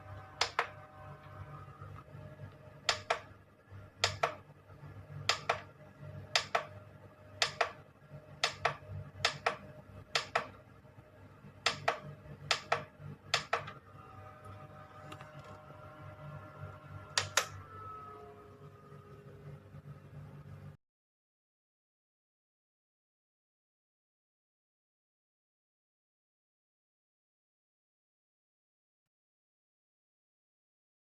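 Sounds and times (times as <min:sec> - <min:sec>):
steady low hum: 0:00.0 - 0:20.8
sharp clicks in pairs: 0:04.0 - 0:04.4, 0:05.3 - 0:05.7, 0:07.4 - 0:07.8, 0:08.4 - 0:09.6, 0:10.2 - 0:10.5, 0:11.6 - 0:13.7.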